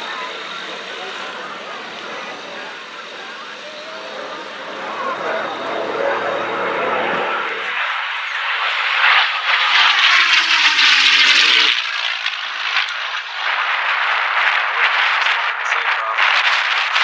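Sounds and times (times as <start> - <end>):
propeller aircraft passing: 0.0 - 11.8.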